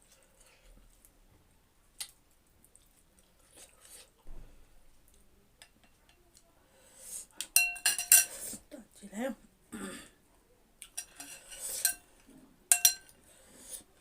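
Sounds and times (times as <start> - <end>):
soft chewing: 0.0 - 8.7, 10.2 - 14.0
spoon clinking against bowl: 7.6 - 8.3, 12.7 - 13.1
slurping soup: 11.0 - 12.2.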